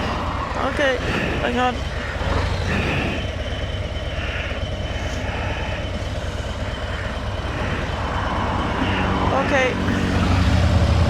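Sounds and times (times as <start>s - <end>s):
motorcycle engine running: 0.0s - 11.0s
road and wind noise: 0.0s - 11.0s.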